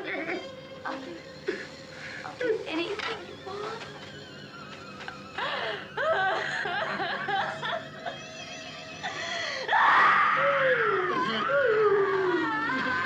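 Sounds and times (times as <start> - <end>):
men cackling and laughing: 5.0 - 9.6
woman screaming: 9.7 - 13.0
low voice wailing: 9.8 - 13.0.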